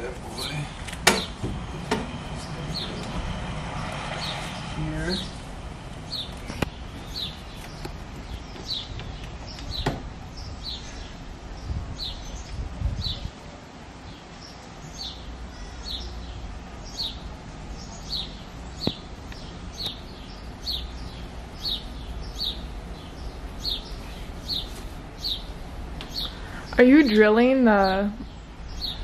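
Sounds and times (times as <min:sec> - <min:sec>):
small bird chirping: 0:14.4 - 0:27.3.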